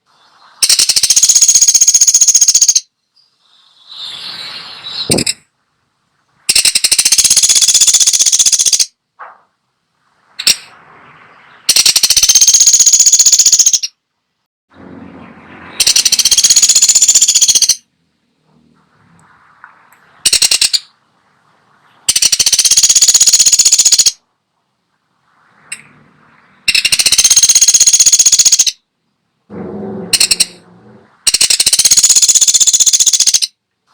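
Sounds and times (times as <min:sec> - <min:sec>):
woodpecker rattling calls: 0:00.6 - 0:02.9, 0:04.9 - 0:05.4, 0:06.5 - 0:09.0, 0:10.4 - 0:10.7, 0:11.4 - 0:14.0, 0:15.7 - 0:17.9, 0:19.7 - 0:21.0, 0:21.9 - 0:24.2, 0:26.6 - 0:28.8, 0:30.1 - 0:30.6, 0:31.2 - 0:33.6.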